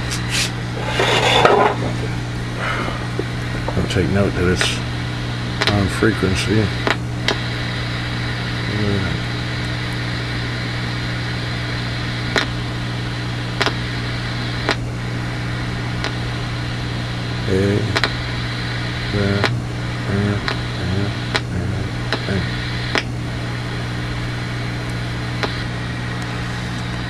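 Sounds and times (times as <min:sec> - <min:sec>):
electrical hum with hiss: 0:00.0 - 0:27.0
sharp clicks: 0:05.6 - 0:05.8, 0:06.8 - 0:07.4, 0:12.3 - 0:12.5, 0:13.6 - 0:13.8, 0:18.0 - 0:18.2.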